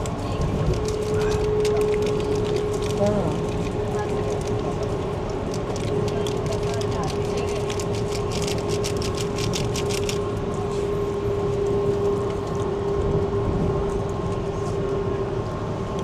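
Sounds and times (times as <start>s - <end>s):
train rumble and hum: 0.0s - 16.0s
sharp clicks and rattles: 0.4s - 10.3s.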